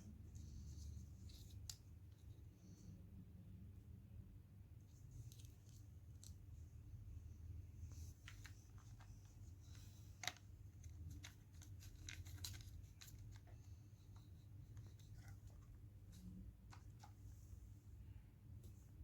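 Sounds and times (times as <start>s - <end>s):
low steady hum: 0.0s - 19.0s
faint clicks and scratches: 4.8s - 6.7s, 7.8s - 17.6s.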